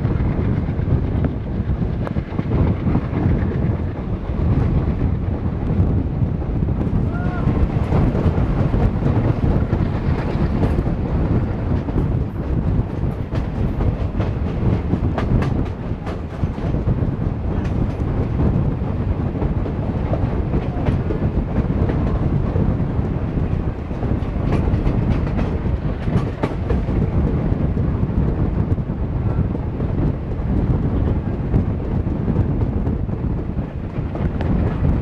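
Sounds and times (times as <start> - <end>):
train wheels rumbling on track: 0.0 - 35.0
wheels clacking over rail joints: 6.8 - 18.7, 19.3 - 27.4.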